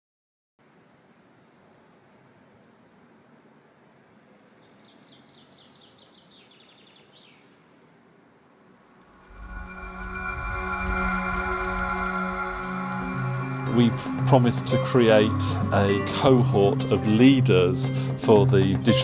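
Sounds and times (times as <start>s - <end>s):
music: 9.1s - 19.0s.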